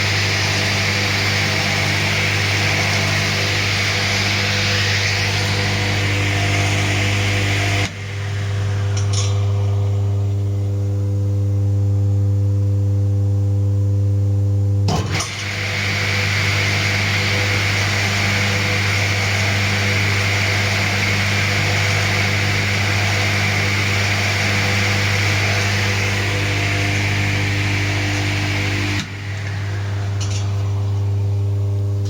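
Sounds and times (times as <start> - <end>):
table saw motor humming: 0.0 - 11.2, 15.2 - 32.0.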